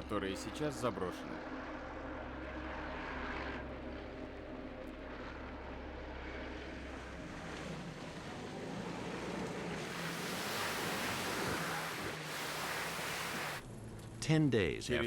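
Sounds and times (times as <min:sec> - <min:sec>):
low hum: 0:00.0 - 0:14.2
steady rushing noise: 0:08.9 - 0:13.6.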